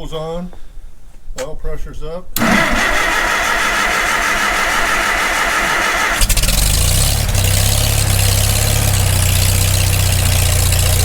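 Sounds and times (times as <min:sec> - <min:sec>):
tractor engine cranking: 0:02.4 - 0:11.0
tractor engine running: 0:02.4 - 0:11.0.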